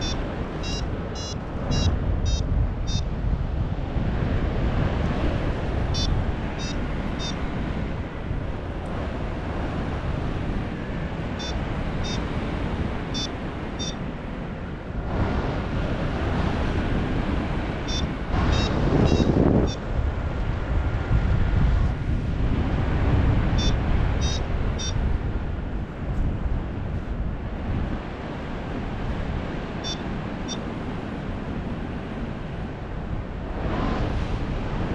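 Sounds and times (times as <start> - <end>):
short high beeps: 0.0 - 3.0, 6.0 - 7.4, 11.4 - 12.2, 13.2 - 14.0, 17.9 - 19.3, 23.6 - 25.0, 29.8 - 30.6
wind on camera microphone: 0.0 - 34.9.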